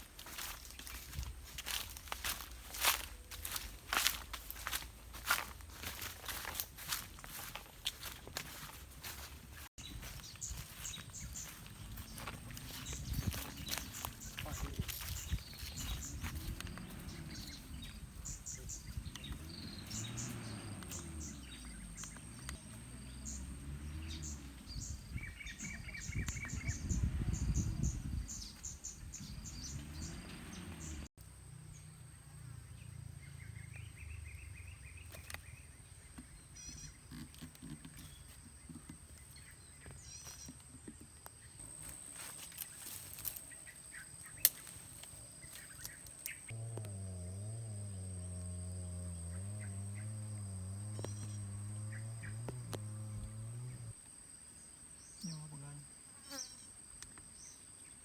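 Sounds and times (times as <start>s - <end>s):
low wind rumble on microphone: 9.8s - 22.1s, 24.2s - 31.0s
high insect whine: 44.4s - 56.8s.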